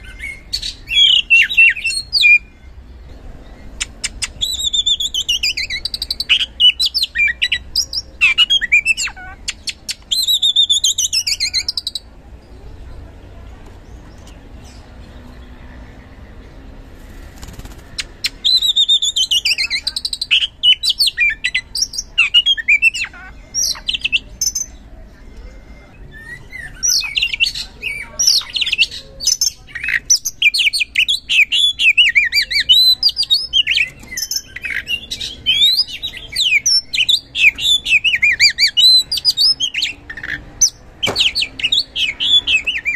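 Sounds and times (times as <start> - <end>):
bird singing whistled phrases: 4.1 - 12.0, 18.4 - 24.8, 26.1 - 40.0.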